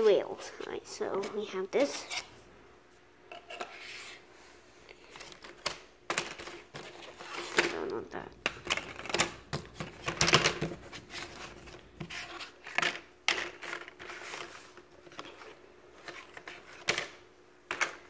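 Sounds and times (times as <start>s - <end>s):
puzzle pieces clicking and rustling: 5.0s - 18.0s.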